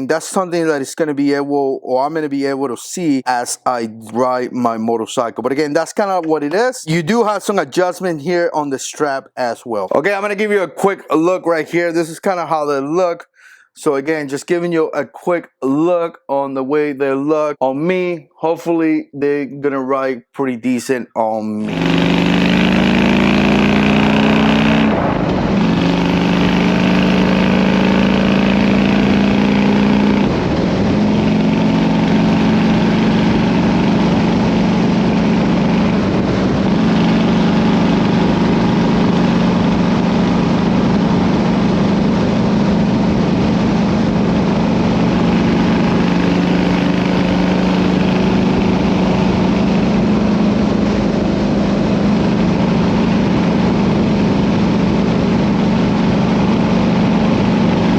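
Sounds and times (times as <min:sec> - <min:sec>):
motorcycle engine running: 0:21.7 - 0:57.9.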